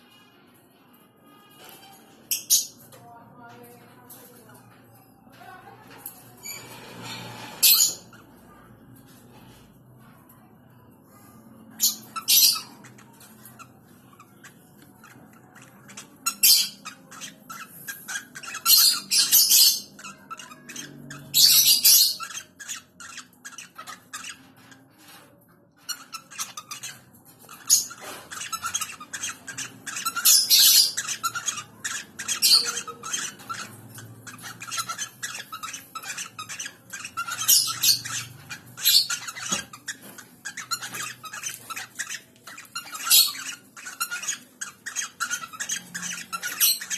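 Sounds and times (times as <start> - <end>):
birds chattering softly: 0.0 - 46.9
birds squawking harshly: 6.3 - 8.4, 11.6 - 46.9.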